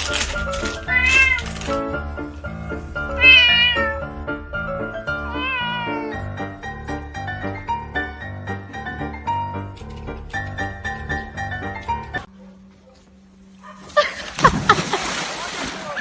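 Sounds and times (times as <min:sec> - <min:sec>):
background music: 0:00.0 - 0:12.3
cat meowing: 0:00.8 - 0:01.6, 0:03.0 - 0:04.1, 0:05.1 - 0:06.3.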